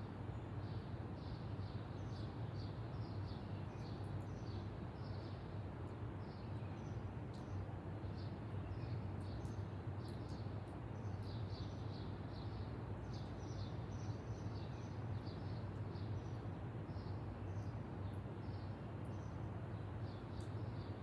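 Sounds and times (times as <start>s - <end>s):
small birds chirping: 6.2s - 21.0s.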